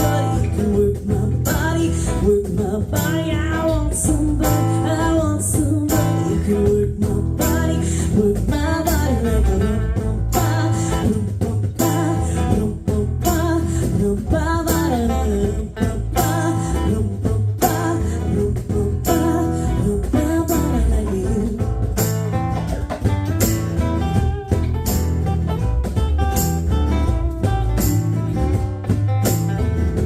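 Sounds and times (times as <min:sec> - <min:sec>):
woman singing: 0:00.0 - 0:22.1
guitar playing: 0:00.0 - 0:30.0
steady drum beat: 0:00.0 - 0:30.0.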